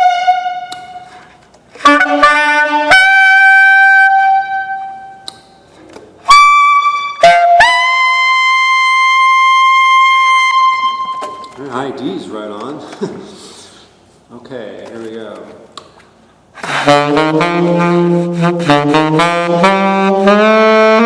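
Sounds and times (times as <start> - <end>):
saxophone playing: 0.0 - 5.4, 6.2 - 11.6, 16.6 - 21.0.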